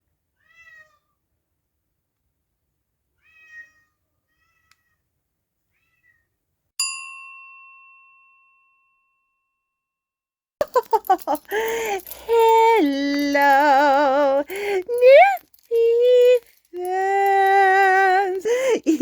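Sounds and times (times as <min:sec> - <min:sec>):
cat meowing: 0:00.4 - 0:01.1, 0:03.2 - 0:05.0
bright bell ding: 0:06.8 - 0:09.1.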